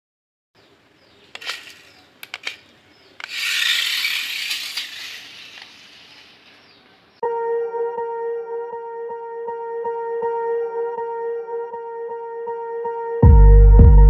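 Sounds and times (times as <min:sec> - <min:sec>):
sharp clicks: 0:01.3 - 0:06.6.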